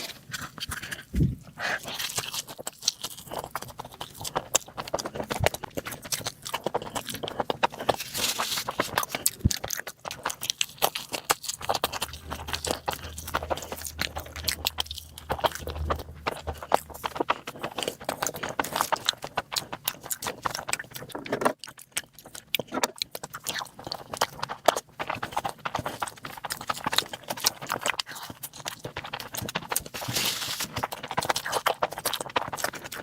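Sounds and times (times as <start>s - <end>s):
low steady hum: 0.0s - 2.2s, 11.6s - 18.6s
wet chewing and mouth smacking: 0.0s - 33.0s.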